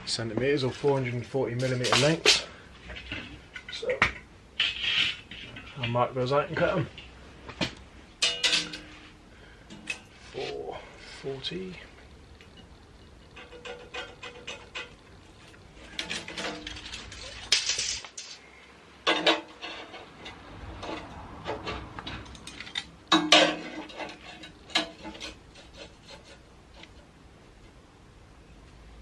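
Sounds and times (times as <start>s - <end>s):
metal bar scraping: 4.6s - 6.8s, 8.2s - 11.4s, 12.5s - 18.5s, 19.1s - 27.1s
sharp metallic clanks: 8.2s - 9.1s, 19.0s - 25.4s.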